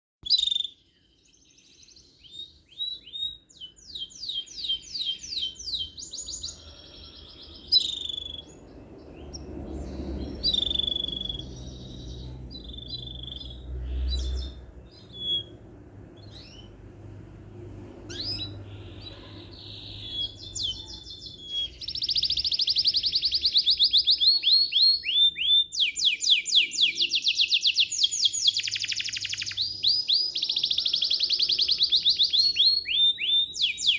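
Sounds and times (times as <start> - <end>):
songbird trilling and chirping: 0.2 - 16.9, 18.1 - 33.9.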